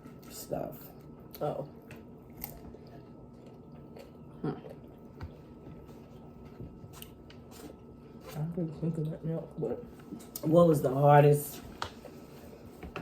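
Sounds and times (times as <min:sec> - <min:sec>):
faint chewing: 0:01.0 - 0:08.4.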